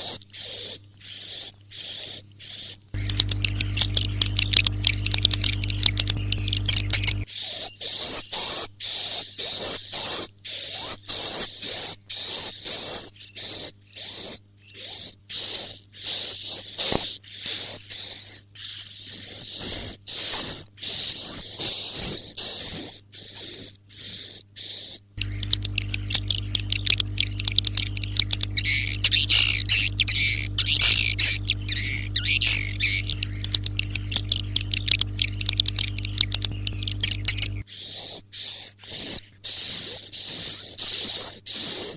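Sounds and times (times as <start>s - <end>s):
low hum: 3.0s - 7.3s, 25.2s - 37.6s
swiftlets twittering: 3.0s - 7.3s, 25.2s - 37.7s.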